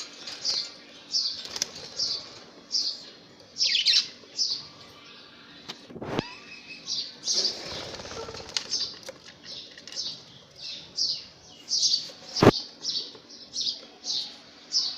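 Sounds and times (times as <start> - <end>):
wings fluttering: 0.0 - 2.5, 7.3 - 10.0.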